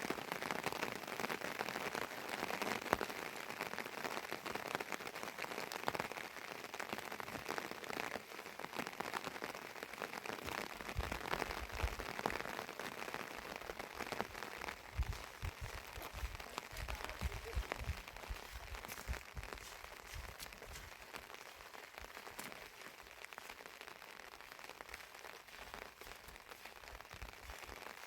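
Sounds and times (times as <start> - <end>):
heavy rain falling: 0.0 - 28.0
low thuds: 14.9 - 20.4.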